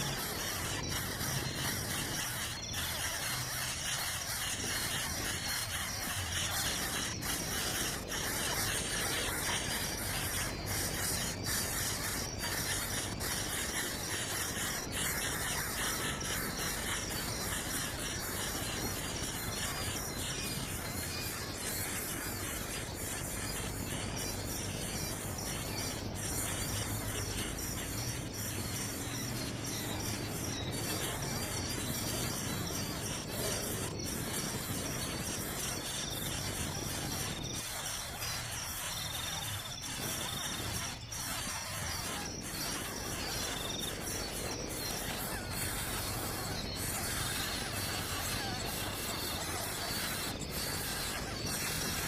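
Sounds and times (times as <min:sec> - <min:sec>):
constant hiss: 0:00.0 - 0:52.0
insect-like chirring: 0:00.0 - 0:52.0.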